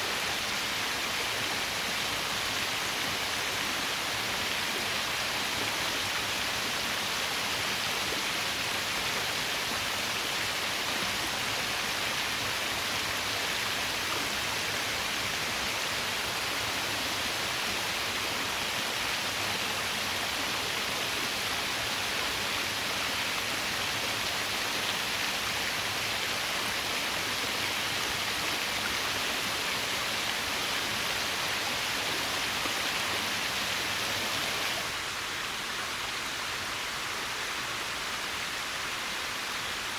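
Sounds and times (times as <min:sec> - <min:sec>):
small waterfall rushing and splashing: 0:00.0 - 0:39.9.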